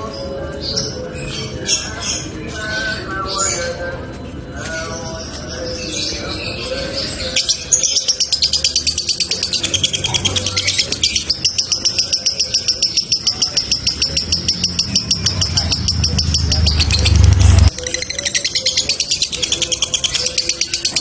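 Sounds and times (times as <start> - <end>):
lovebird chattering chirps: 7.2 - 21.0.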